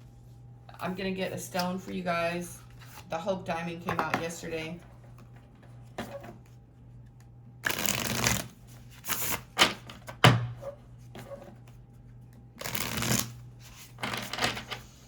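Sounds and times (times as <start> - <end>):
cards being shuffled: 7.2 - 9.5, 12.6 - 14.9.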